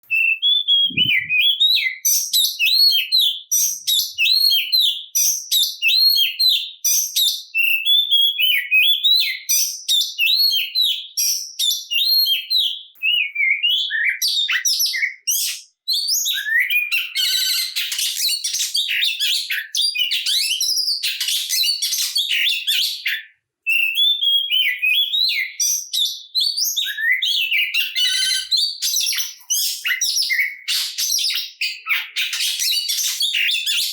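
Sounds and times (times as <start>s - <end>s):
bird whistled song: 0.0s - 33.9s
bird harsh chattering: 0.8s - 1.4s, 17.1s - 18.3s, 28.0s - 30.0s.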